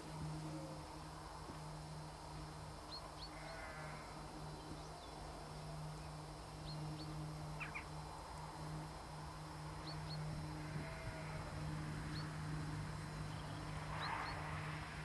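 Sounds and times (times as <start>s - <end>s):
low steady hum: 0.0s - 15.0s
small birds chirping: 2.8s - 8.0s, 9.6s - 14.5s.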